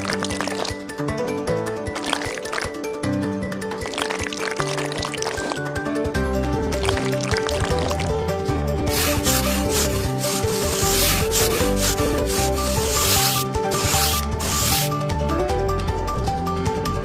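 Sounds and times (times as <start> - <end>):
background music: 0.0 - 17.0
scraping on hard surface: 8.9 - 14.9.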